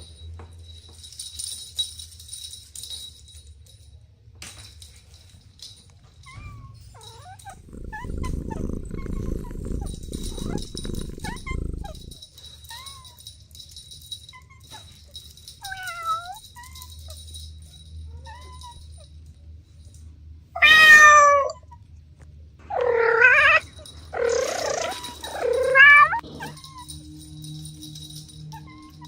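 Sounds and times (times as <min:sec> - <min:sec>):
cats meowing: 0:07.5 - 0:12.2, 0:20.6 - 0:21.6, 0:22.7 - 0:23.6, 0:24.2 - 0:26.6.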